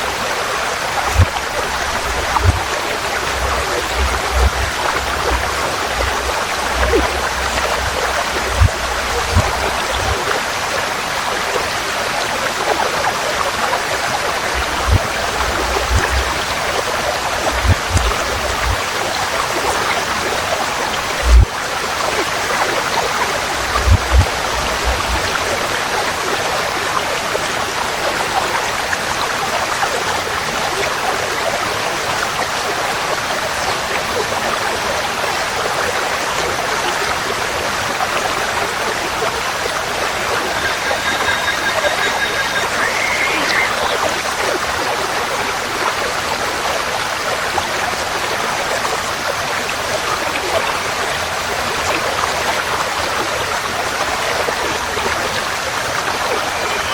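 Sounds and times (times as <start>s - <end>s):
stream flowing: 0.0s - 56.9s
low thumps: 1.1s - 10.2s, 14.6s - 16.5s
faint bird call: 40.1s - 44.2s.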